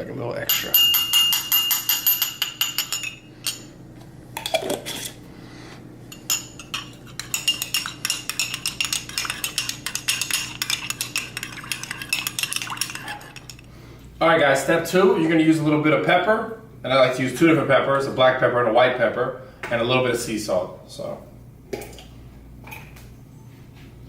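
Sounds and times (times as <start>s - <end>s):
whisk clinking against bowl: 0.5s - 3.7s, 6.1s - 13.7s.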